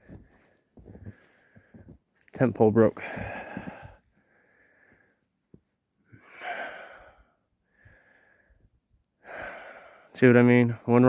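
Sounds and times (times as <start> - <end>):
man breathing heavily: 0.0 - 2.1, 2.9 - 5.3, 6.1 - 10.2.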